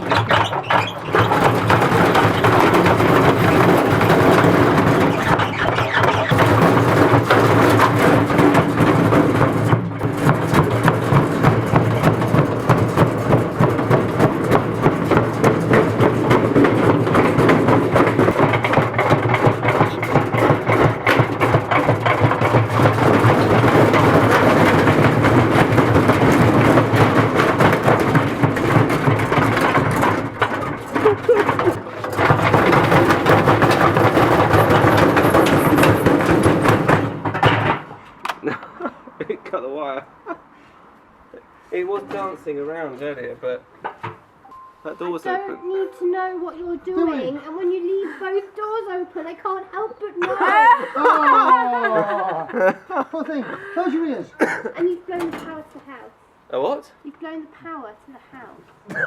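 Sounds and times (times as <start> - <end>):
washing machine banging and rattling: 0.0 - 38.6, 45.0 - 48.0, 54.0 - 56.0.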